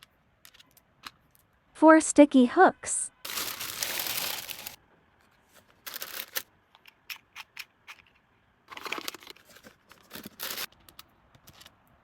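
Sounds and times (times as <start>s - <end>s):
plastic packaging rustling: 3.2s - 8.1s, 8.7s - 11.7s.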